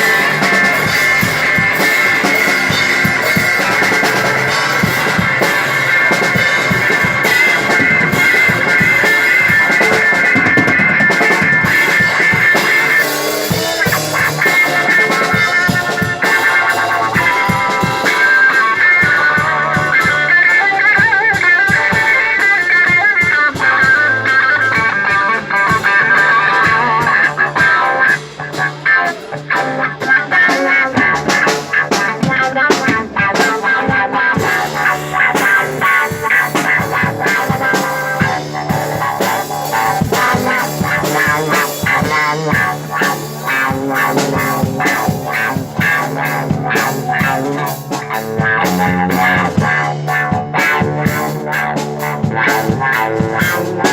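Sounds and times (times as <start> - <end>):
drum kit hits: 0.0 - 21.1, 21.7 - 53.9
electric guitar: 0.0 - 53.9.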